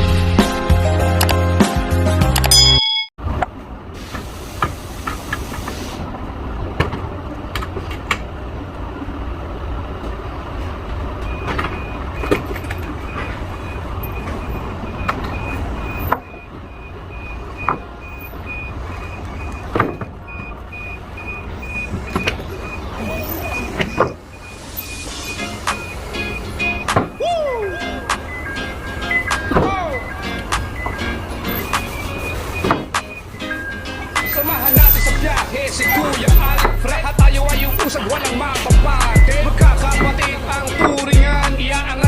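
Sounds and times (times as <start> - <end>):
forklift engine running: 3.2 - 42.0
reversing alarm beeping: 11.2 - 42.0.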